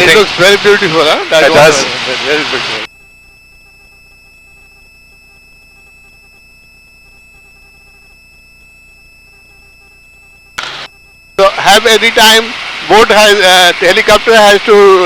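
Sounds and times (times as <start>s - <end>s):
electronic hiss: 0.0s - 2.9s, 10.6s - 15.0s
high-pitched tones: 0.0s - 15.0s
burst of noise: 10.6s - 15.0s.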